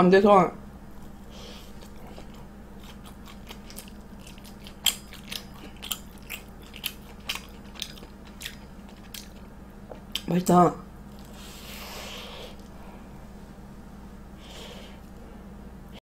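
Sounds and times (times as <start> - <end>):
crunchy chewing: 0.9 - 10.3, 11.0 - 12.7.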